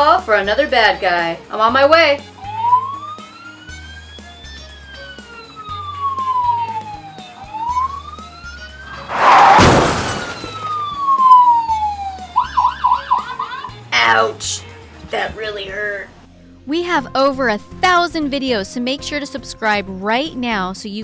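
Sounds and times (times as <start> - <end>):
police siren wailing: 2.2 - 13.8
loud burst of noise: 8.9 - 10.7.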